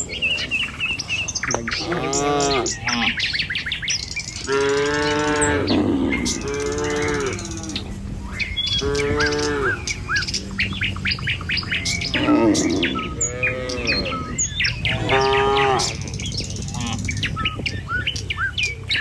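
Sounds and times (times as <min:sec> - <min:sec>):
birds chirping: 0:00.0 - 0:19.0
cattle mooing: 0:01.5 - 0:03.3, 0:04.4 - 0:18.3.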